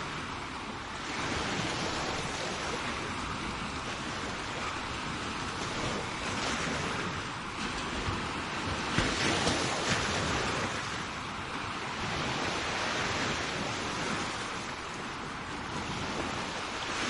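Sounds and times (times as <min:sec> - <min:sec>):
sea waves breaking on shore: 0:00.0 - 0:17.0
wind on microphone: 0:00.0 - 0:17.0.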